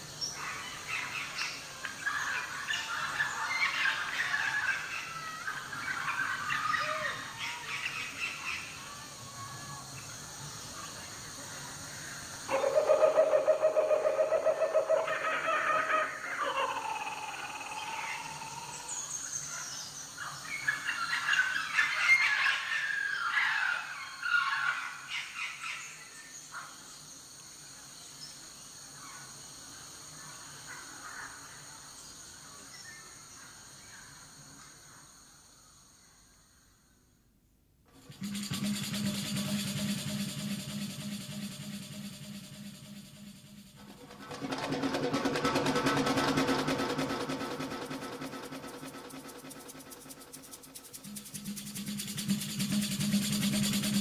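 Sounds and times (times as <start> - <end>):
bird calls and chirps: 0.0 - 26.8, 38.0 - 54.0.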